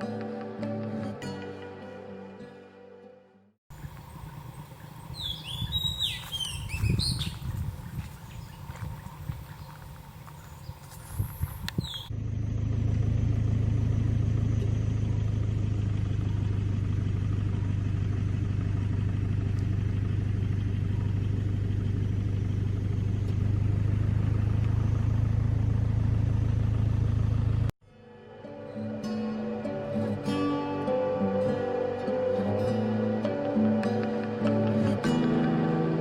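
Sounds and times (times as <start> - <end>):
engine droning: 3.7 - 27.7.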